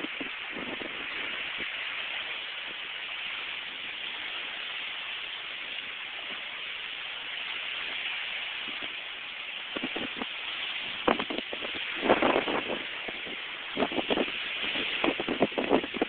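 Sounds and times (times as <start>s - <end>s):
strong wind: 0.0s - 6.6s, 7.3s - 16.0s
sea: 0.0s - 16.0s.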